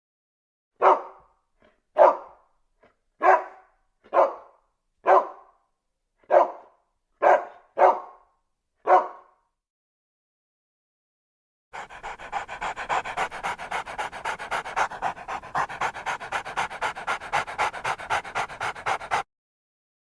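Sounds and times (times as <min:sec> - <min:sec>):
dog barking: 0:00.8 - 0:02.4, 0:03.2 - 0:09.5, 0:11.8 - 0:19.2.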